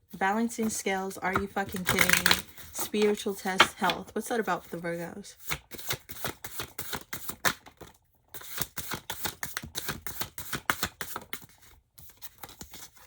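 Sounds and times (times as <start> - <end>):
cards being shuffled: 1.3 - 4.1, 5.4 - 13.0.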